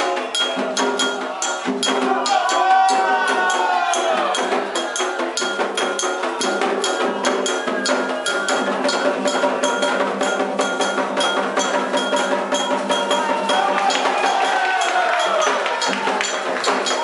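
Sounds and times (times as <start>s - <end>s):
hand drums playing: 0.0s - 17.0s
metal bell struck pattern: 0.0s - 17.0s.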